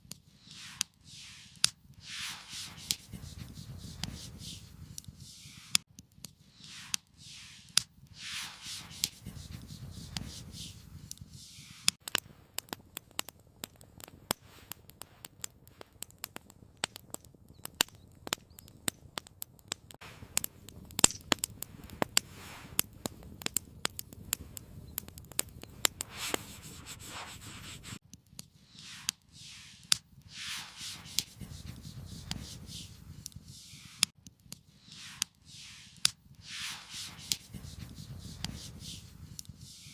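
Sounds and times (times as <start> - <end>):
campfire crackling: 0.0 - 39.9
rustling and brushing sounds: 0.3 - 5.8, 6.4 - 12.0, 21.6 - 23.4, 25.9 - 28.0, 28.6 - 34.1, 34.7 - 39.9.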